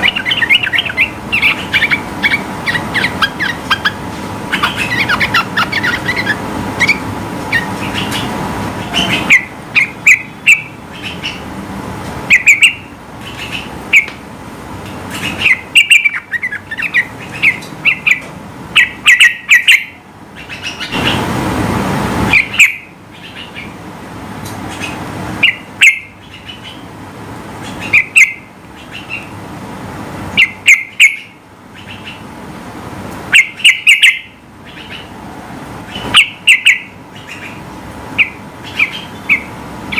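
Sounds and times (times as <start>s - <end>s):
bulbul chirping: 0.0s - 11.4s, 12.3s - 14.1s, 15.1s - 18.2s
rush of noise: 20.2s - 25.4s.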